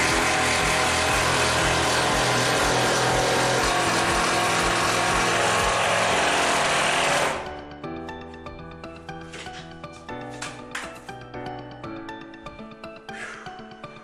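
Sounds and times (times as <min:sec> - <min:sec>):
power tool working wood: 0:00.0 - 0:07.6.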